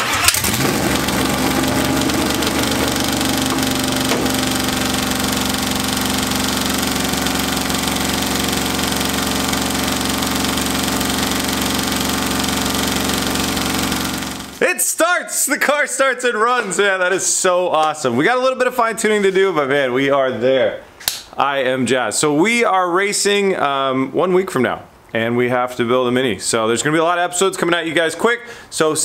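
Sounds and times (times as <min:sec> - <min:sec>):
car engine idling: 0:00.0 - 0:14.6.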